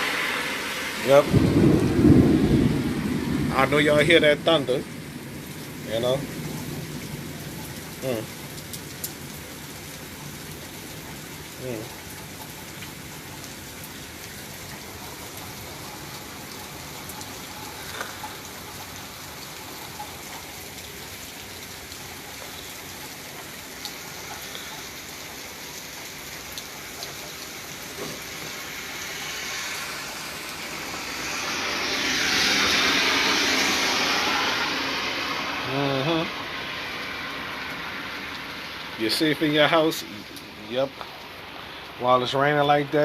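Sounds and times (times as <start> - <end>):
rain falling: 0.0 - 43.0
small drips: 5.4 - 31.5.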